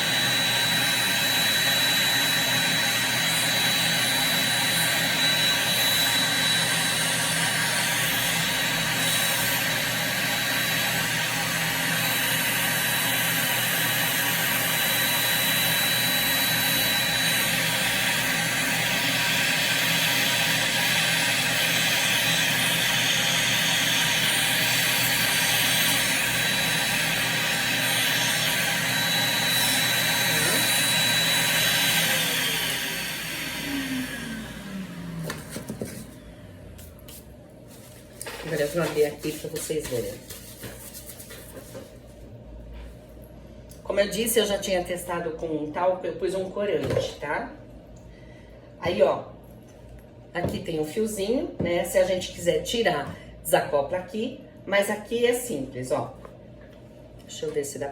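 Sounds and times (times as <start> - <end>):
sanding machine whining: 0.0 - 36.3.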